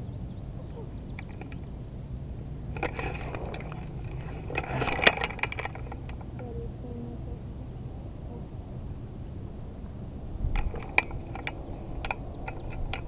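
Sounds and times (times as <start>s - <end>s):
gear rustling and rattling: 1.2s - 1.7s, 2.7s - 6.5s, 10.5s - 13.0s.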